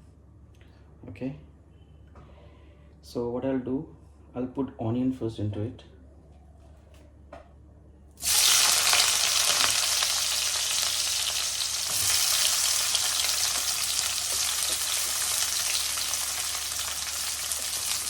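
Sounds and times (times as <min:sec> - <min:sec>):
onion sizzling in oil: 0:08.2 - 0:18.0.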